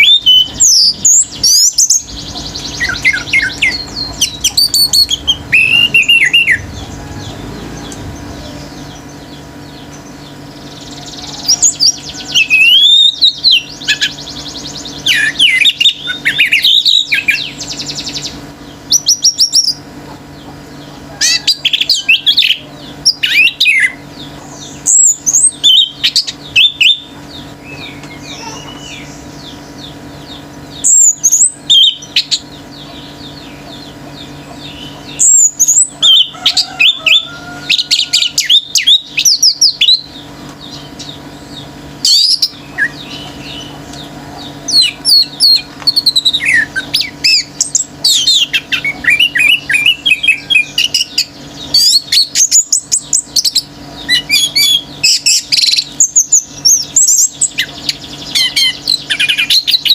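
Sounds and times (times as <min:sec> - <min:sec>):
thrush singing: 0:00.0 - 0:19.1
faint steady hum: 0:00.0 - 0:59.9.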